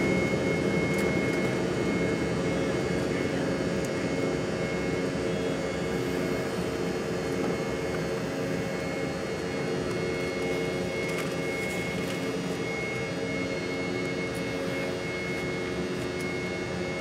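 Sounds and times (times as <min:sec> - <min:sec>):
jet engines rushing and whining: 0:00.0 - 0:17.0.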